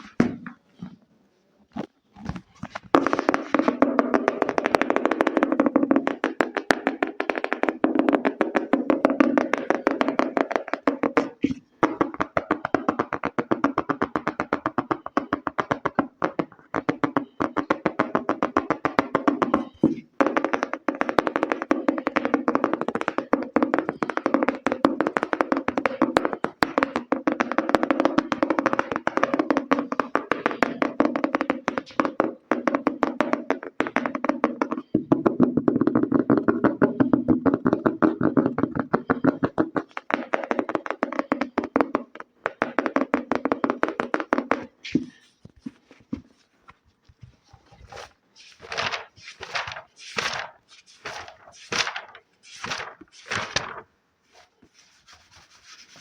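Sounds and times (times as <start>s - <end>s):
fast fingertip tapping: 3.0s - 45.3s.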